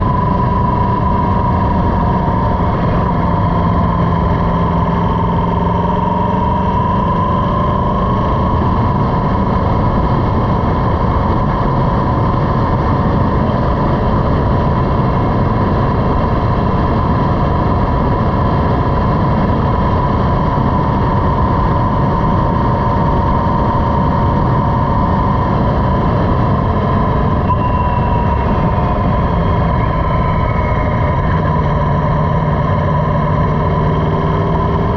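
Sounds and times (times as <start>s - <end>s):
motorcycle engine running: 0.0s - 34.9s
wind rush: 0.0s - 34.9s
wavering high tone: 26.9s - 33.1s.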